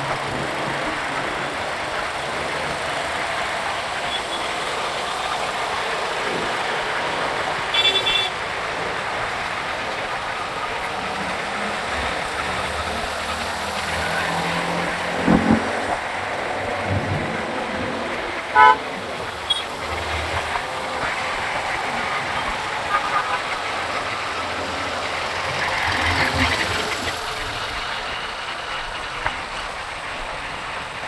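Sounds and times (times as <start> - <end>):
motorcycle in city traffic: 0.0 - 31.0
vehicle horn honk: 7.7 - 8.4, 18.5 - 18.9, 22.9 - 23.5.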